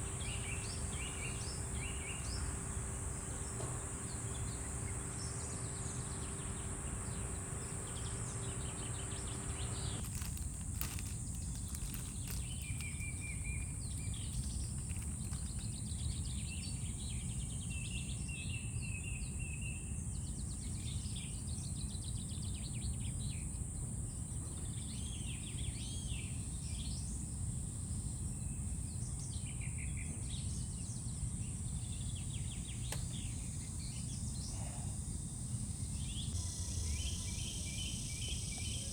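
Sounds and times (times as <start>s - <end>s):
birds chirping and trilling: 0.0s - 17.7s, 35.9s - 38.9s
insect drone: 0.0s - 17.9s, 33.1s - 38.9s
faint steady hum: 0.0s - 38.9s.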